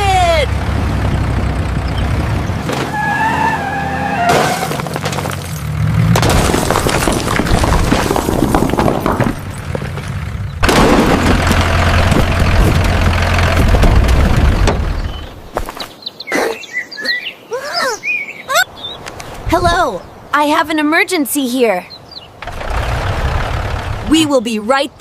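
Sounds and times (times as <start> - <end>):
cartoon crashing and shattering: 4.2 - 5.5, 6.2 - 9.2.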